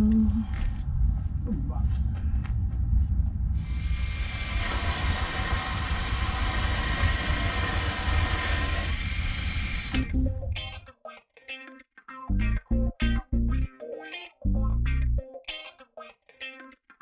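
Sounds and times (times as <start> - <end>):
low rumble: 0.0 - 10.8
loud steady hiss: 3.6 - 10.3.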